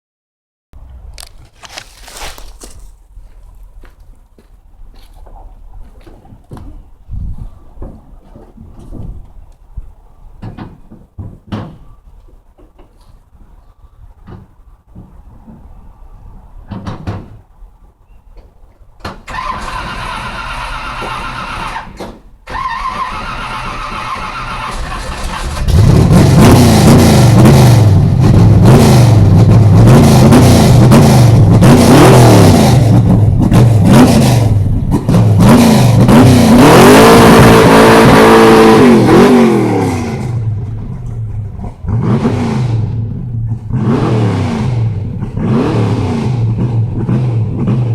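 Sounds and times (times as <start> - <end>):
car engine revving to limiter: 22.5 - 47.9.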